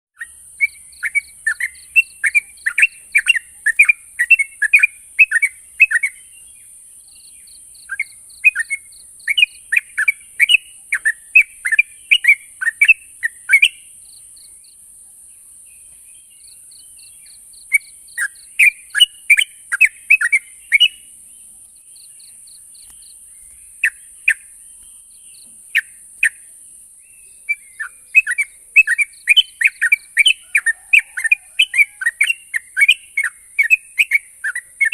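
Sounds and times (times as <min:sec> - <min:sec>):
bird bubbling chattering song: 0:00.2 - 0:06.5, 0:07.1 - 0:14.0, 0:17.0 - 0:21.0, 0:22.2 - 0:24.6, 0:27.4 - 0:34.9.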